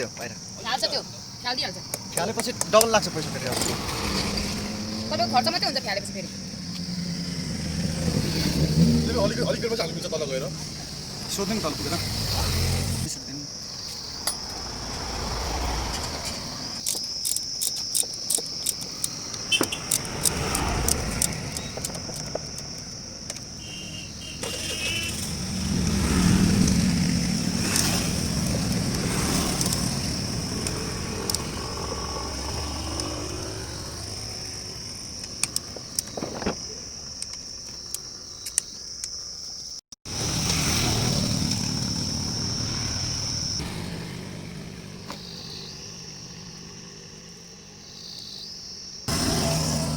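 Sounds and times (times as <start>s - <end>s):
high insect drone: 0.0s - 49.9s
low vehicle rumble: 14.0s - 16.8s.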